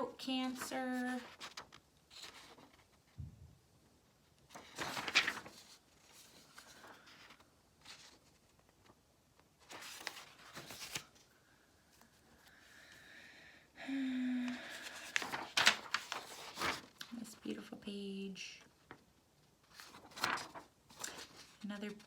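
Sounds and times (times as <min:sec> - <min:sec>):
paper pages turning: 0:00.3 - 0:03.2, 0:04.4 - 0:11.3, 0:14.5 - 0:17.4, 0:18.7 - 0:22.0.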